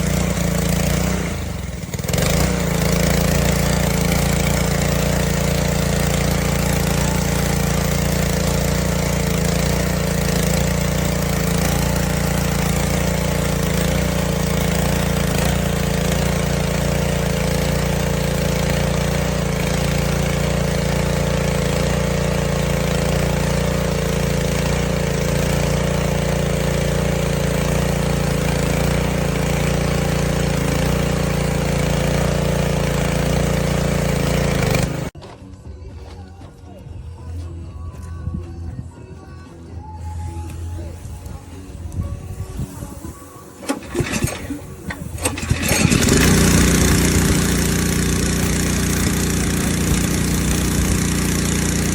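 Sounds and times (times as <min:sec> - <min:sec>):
small gas engine running: 0:00.0 - 0:35.2, 0:40.3 - 0:51.9
water spraying on concrete: 0:46.2 - 0:51.9.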